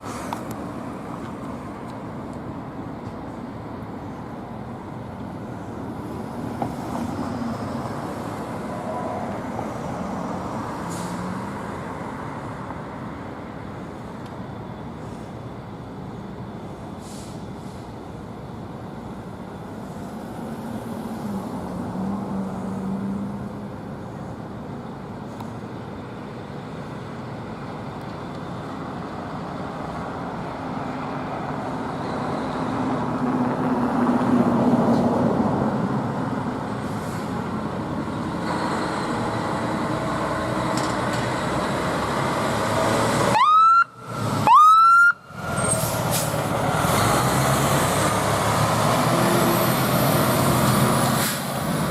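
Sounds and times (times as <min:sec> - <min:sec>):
fire truck driving past: 0:25.8 - 0:51.9
siren whoops: 0:43.3 - 0:45.3.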